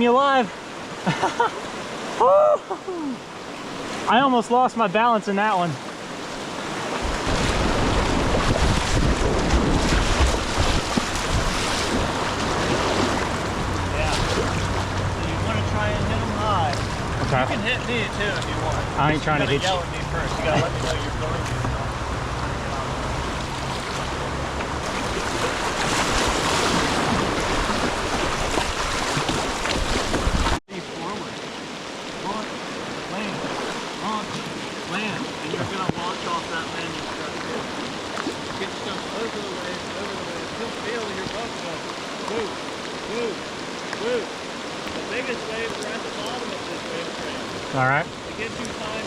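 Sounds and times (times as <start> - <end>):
whitewater rushing and splashing: 0.0 - 49.0
wind rumbling on microphone: 6.9 - 19.0, 19.7 - 30.6.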